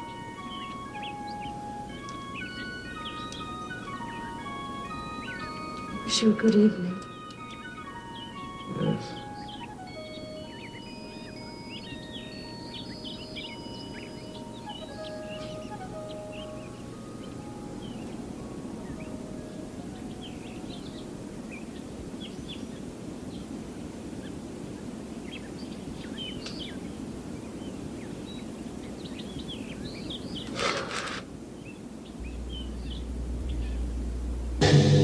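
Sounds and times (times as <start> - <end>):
small birds chirping: 0.0 - 34.5
low background rush: 0.0 - 35.0
low hum: 32.2 - 35.0
noisy burst: 32.2 - 35.0.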